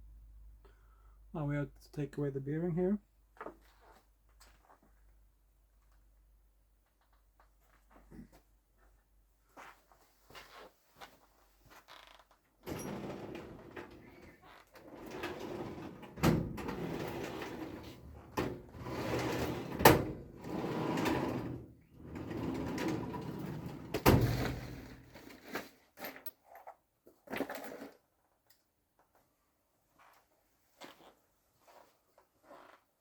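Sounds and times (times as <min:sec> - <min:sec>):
scraping and creaking metal: 0:12.7 - 0:19.8, 0:20.4 - 0:23.9.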